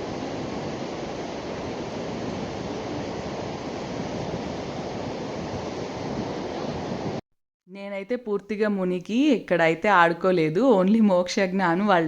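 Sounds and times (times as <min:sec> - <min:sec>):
surf washing onto beach: 0:00.0 - 0:07.2.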